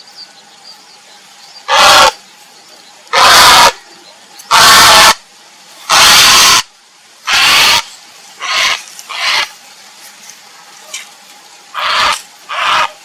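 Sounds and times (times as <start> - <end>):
heron croaking: 1.6 - 2.2, 3.1 - 3.8, 4.5 - 5.2, 5.9 - 6.7, 7.3 - 9.5, 11.7 - 13.0.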